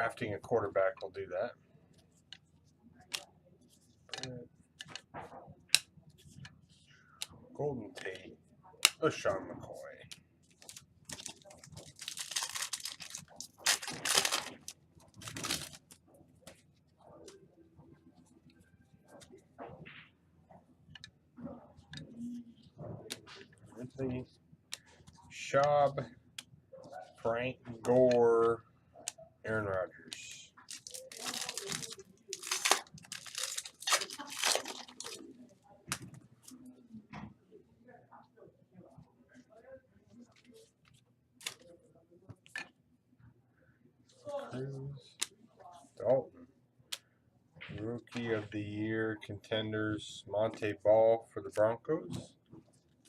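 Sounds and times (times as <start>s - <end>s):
packaging crinkling and rustling: 10.6s - 16.0s, 30.6s - 35.3s.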